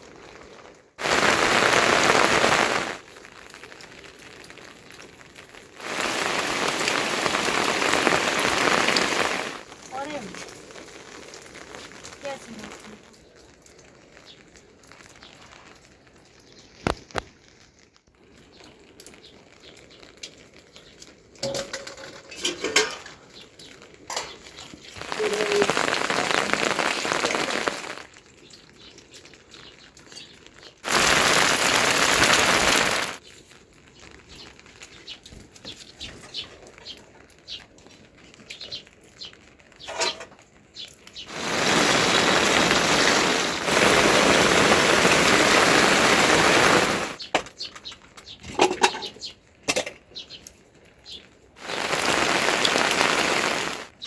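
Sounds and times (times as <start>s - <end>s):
heavy rain hissing: 0.0s - 17.5s, 21.5s - 28.9s, 30.8s - 33.2s, 40.8s - 47.3s, 51.6s - 54.0s.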